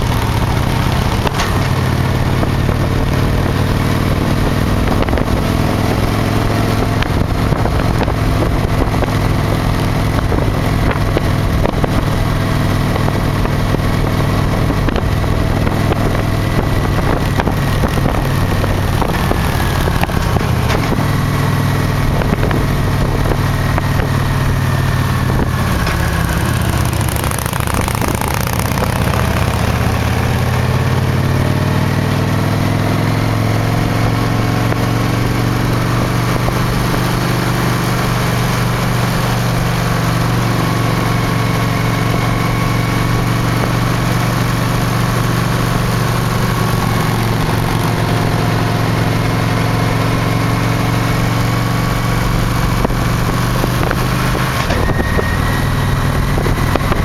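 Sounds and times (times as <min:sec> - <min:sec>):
wind rush: 0:00.0 - 0:30.7, 0:51.2 - 0:57.0
motorcycle engine running: 0:00.0 - 0:57.0.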